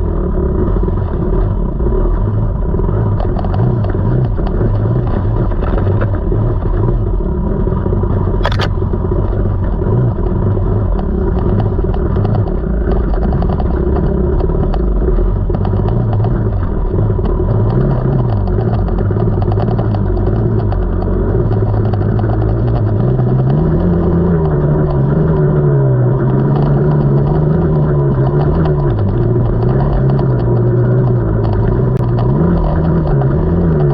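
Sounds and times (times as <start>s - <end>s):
sharp click: 8.4s - 8.8s.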